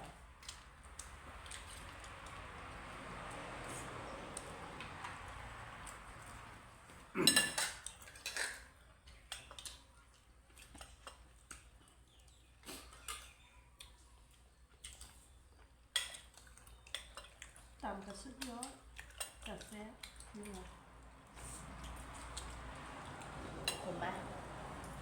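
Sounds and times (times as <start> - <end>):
cutlery clattering: 7.2 - 8.7
cutlery clinking on dishes: 7.2 - 8.7, 23.5 - 24.0.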